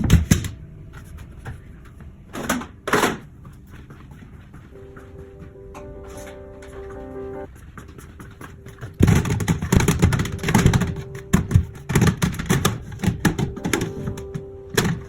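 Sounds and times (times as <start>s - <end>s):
household items clattering: 8.4s - 15.0s.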